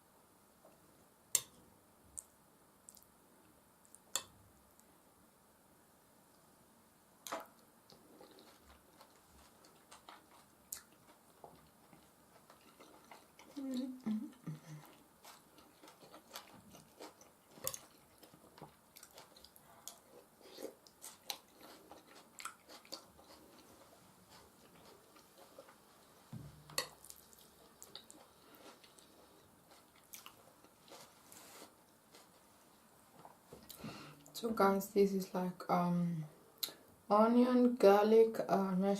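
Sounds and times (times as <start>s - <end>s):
wet mouth eating sounds: 7.2s - 25.8s, 26.8s - 31.0s
chewing soft food: 7.2s - 32.4s
low thump: 26.3s - 26.6s.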